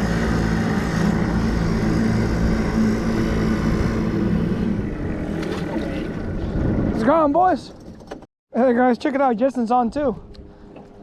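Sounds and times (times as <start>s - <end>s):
small boat motor humming: 0.0s - 8.2s.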